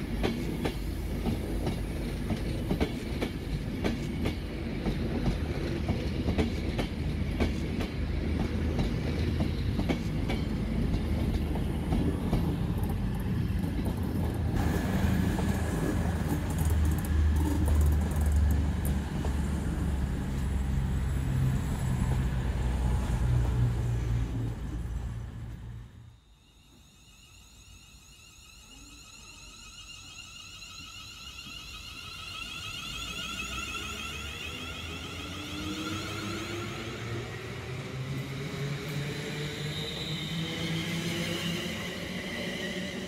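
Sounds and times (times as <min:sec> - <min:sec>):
train wheels clicking over rail joints: 0:00.0 - 0:20.6
low train drone: 0:00.0 - 0:43.0.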